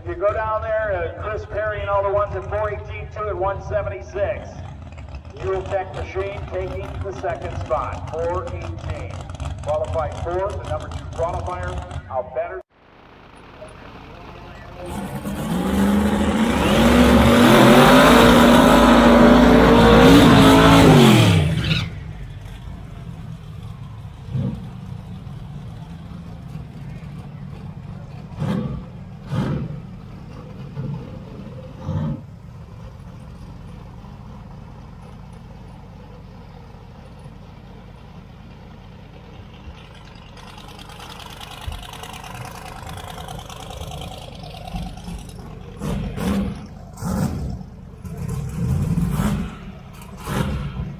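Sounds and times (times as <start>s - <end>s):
race car engines at full throttle: 0.0s - 50.9s.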